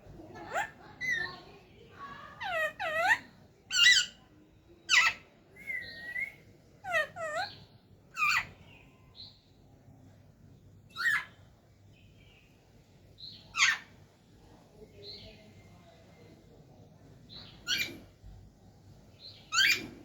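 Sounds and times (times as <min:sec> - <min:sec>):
parrot squawking and chirping: 0:00.4 - 0:01.5, 0:02.2 - 0:04.2, 0:04.9 - 0:08.6, 0:10.9 - 0:11.4, 0:13.5 - 0:13.9, 0:17.6 - 0:18.0, 0:19.5 - 0:20.0.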